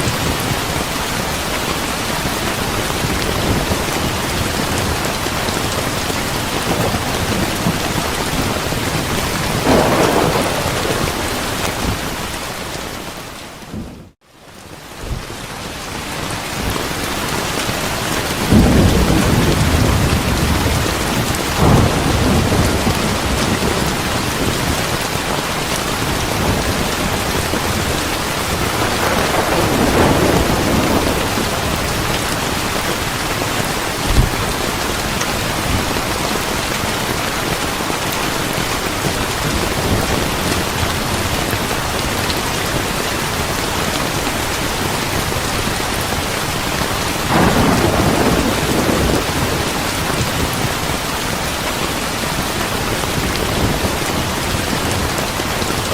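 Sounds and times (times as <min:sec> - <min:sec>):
thunder rumbling: 0:00.0 - 0:14.2, 0:17.9 - 0:55.9
steady rain falling: 0:00.0 - 0:55.9
sharp thunder clap: 0:06.7 - 0:12.5, 0:18.5 - 0:25.0, 0:26.2 - 0:32.4, 0:47.3 - 0:50.5.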